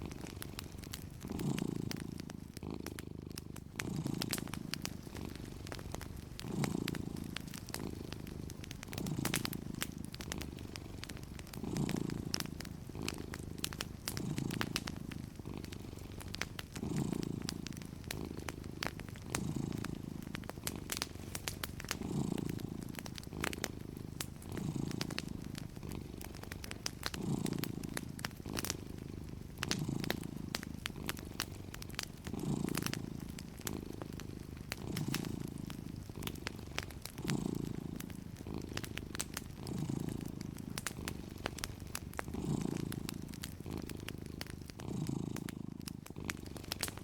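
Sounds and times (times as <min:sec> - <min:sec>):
cat purring: 0:00.0 - 0:47.0
wood fire crackling: 0:00.0 - 0:47.0.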